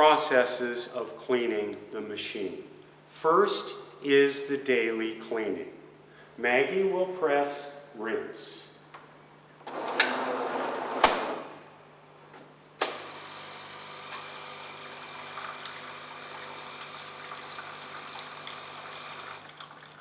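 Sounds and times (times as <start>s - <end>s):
coffee machine rushing noise: 9.6s - 11.6s, 12.8s - 19.4s
pump hum: 12.8s - 20.0s
water running through lines: 13.9s - 20.0s.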